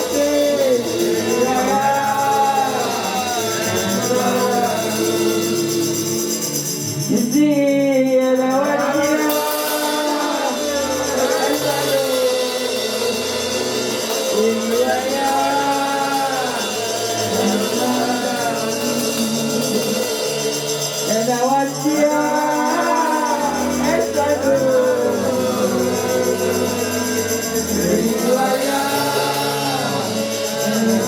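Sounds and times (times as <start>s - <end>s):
person singing: 0.0s - 31.0s
tambourine and percussion: 0.0s - 31.0s.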